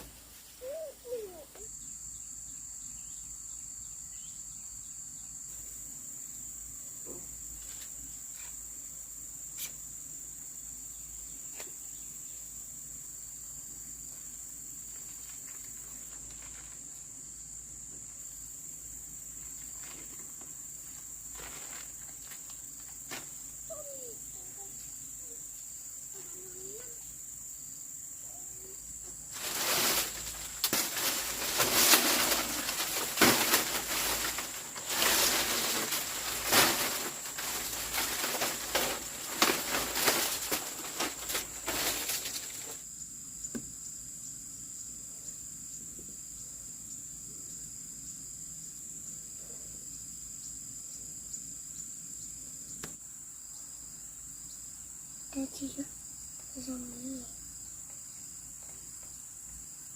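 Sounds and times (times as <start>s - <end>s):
cricket trill: 0.0s - 59.9s
loud rustling and scraping: 19.7s - 23.4s, 29.3s - 42.8s.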